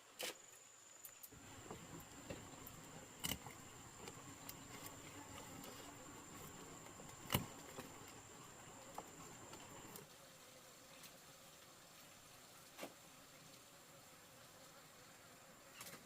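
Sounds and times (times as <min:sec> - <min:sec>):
insects chirring: 0:00.1 - 0:10.0.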